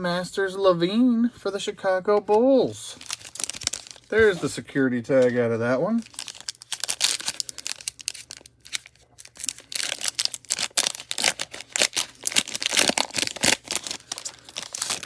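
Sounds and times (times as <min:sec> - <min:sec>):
plastic wrapper crinkling and tearing: 0:02.9 - 0:04.5, 0:05.1 - 0:15.0.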